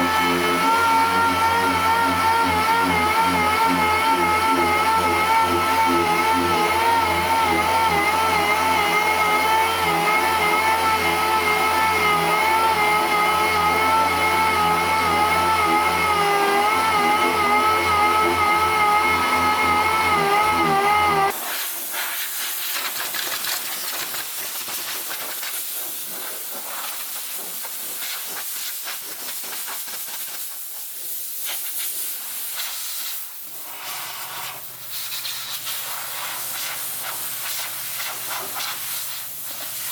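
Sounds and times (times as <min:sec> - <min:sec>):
compressed air hissing: 0:21.3 - 0:39.9.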